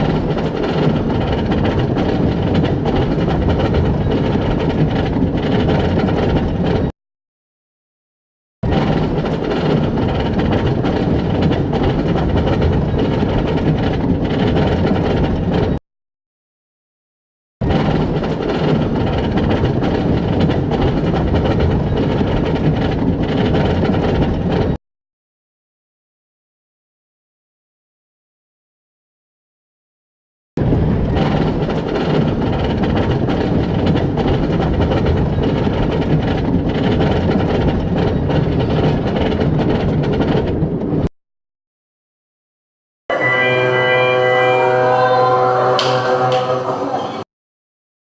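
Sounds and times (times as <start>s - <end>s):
ride train rumbling on rails: 0.0s - 6.9s, 8.6s - 15.8s, 17.6s - 24.8s, 30.6s - 41.1s, 43.1s - 47.3s.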